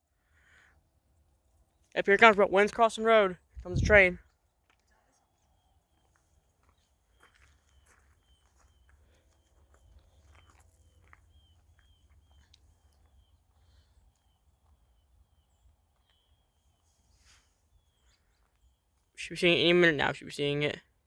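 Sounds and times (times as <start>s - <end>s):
low rumble: 3.6s - 4.2s.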